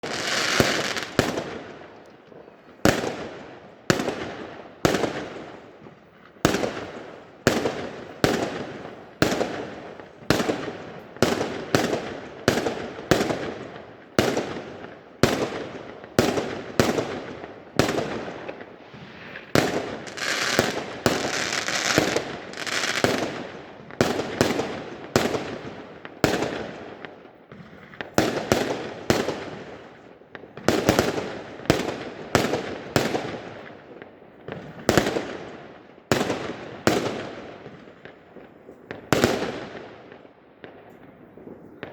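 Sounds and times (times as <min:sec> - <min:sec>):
fireworks banging: 0:00.0 - 0:01.7, 0:17.8 - 0:25.7.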